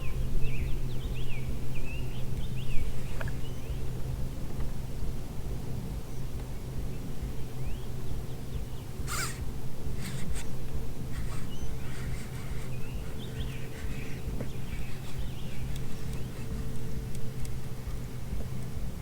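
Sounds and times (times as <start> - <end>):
low hum and rumble: 0.0 - 19.0
birds chirping: 6.1 - 19.0.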